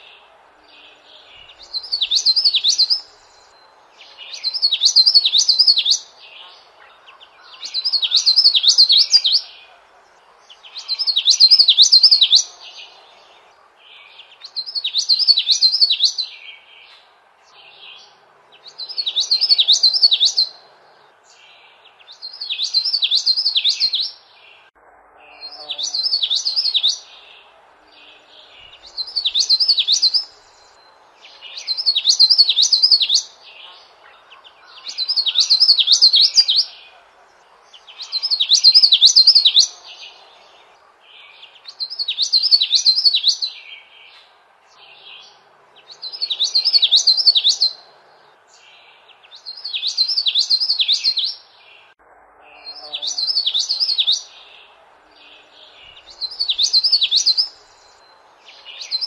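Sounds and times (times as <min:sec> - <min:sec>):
songbird warbling: 0:00.0 - 0:09.7, 0:10.3 - 0:17.0, 0:17.6 - 0:20.6, 0:21.3 - 0:44.2, 0:44.8 - 0:47.9, 0:48.5 - 0:51.9, 0:52.5 - 0:59.0
faint steady hiss: 0:00.0 - 0:59.0.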